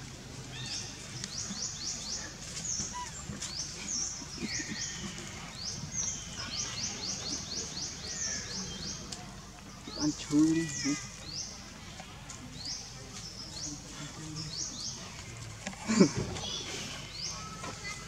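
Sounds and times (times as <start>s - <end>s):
birds chirping: 0.4s - 18.0s.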